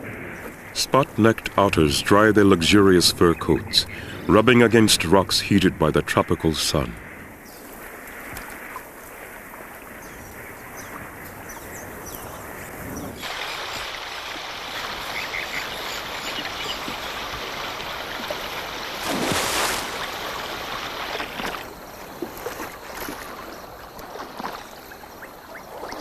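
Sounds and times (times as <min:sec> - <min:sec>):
water lapping and splashing: 0:00.0 - 0:26.0
loud water splash: 0:13.2 - 0:21.8.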